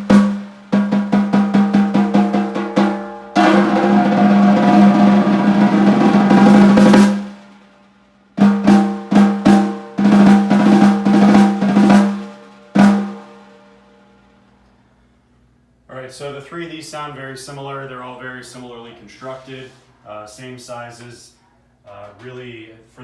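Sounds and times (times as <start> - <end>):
snare drum strokes and rolls: 0.0 - 7.6, 8.4 - 13.6.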